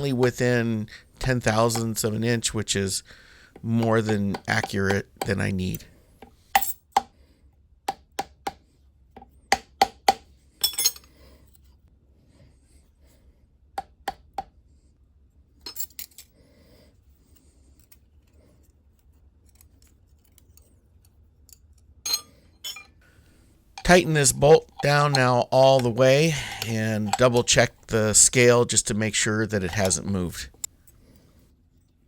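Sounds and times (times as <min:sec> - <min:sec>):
metallic clinks of steel parts: 0:10.6 - 0:11.1, 0:22.1 - 0:23.0
faint shop hum: 0:21.4 - 0:31.8.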